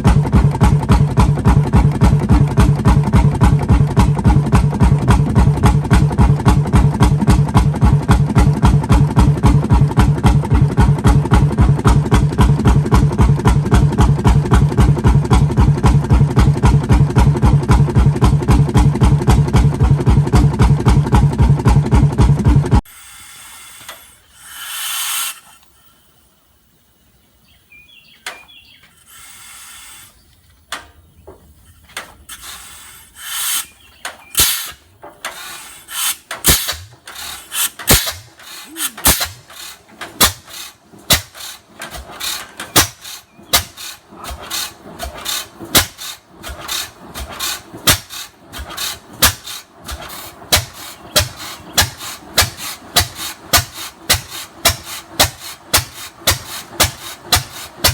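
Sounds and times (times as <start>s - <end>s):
stationary engine firing beats: 0.0s - 22.8s, 35.9s - 57.9s
hiss burst: 22.9s - 27.8s, 28.9s - 30.9s, 31.5s - 57.9s.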